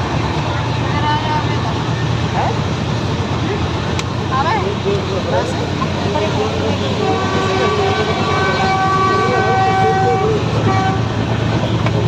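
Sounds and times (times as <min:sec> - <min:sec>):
low rumble of moving train: 0:00.0 - 0:12.0
train horn blasts: 0:06.8 - 0:11.8.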